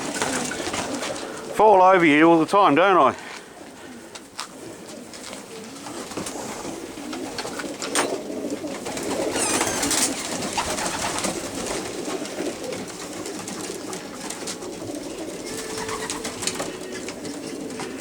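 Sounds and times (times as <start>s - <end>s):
pigeons cooing: 0.0s - 18.0s
high-pitched squeak: 9.3s - 10.1s, 15.4s - 18.0s.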